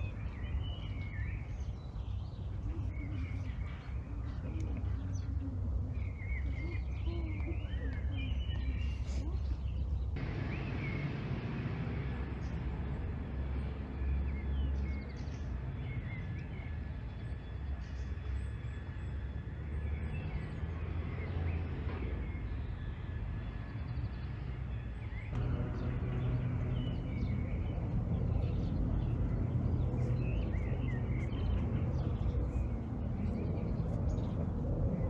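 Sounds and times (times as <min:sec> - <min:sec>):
steady low rumble: 0:00.0 - 0:17.7, 0:25.2 - 0:35.0
small birds chirping: 0:00.0 - 0:19.2, 0:19.8 - 0:35.0.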